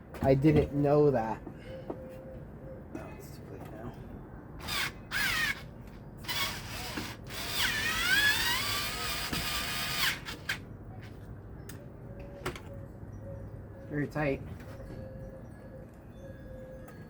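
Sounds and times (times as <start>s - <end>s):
power drill driving screws: 4.6s - 10.6s.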